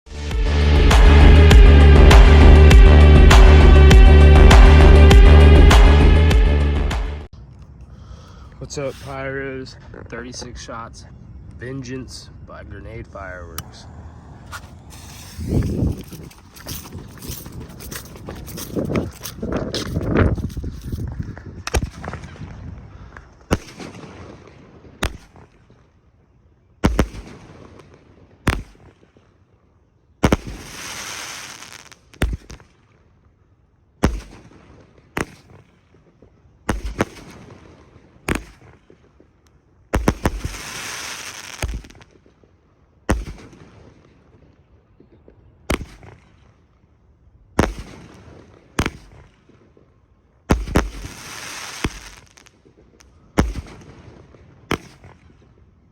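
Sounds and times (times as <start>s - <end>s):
firework hiss: 14.3s - 16.5s, 30.4s - 32.0s, 40.0s - 42.0s, 50.6s - 52.5s
firework bangs: 14.4s - 16.5s, 30.2s - 32.7s, 36.7s - 39.0s, 39.9s - 42.3s, 43.1s - 44.0s, 47.6s - 49.6s, 50.5s - 55.4s.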